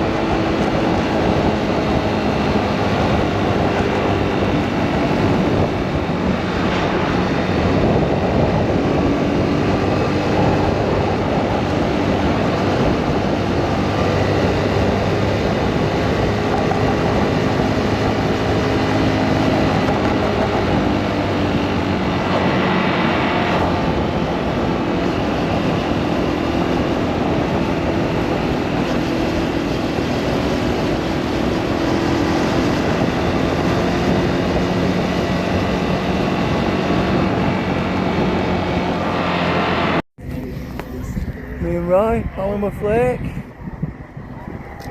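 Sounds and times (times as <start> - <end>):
rushing noise: 4.0 - 14.4, 20.7 - 25.3, 36.3 - 44.9.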